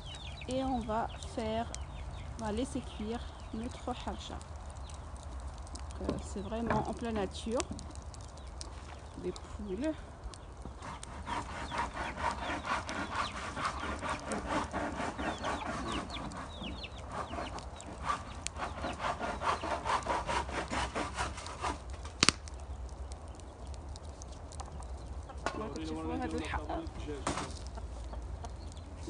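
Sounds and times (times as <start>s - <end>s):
chickens clucking: 10.6s - 20.3s, 24.0s - 29.0s.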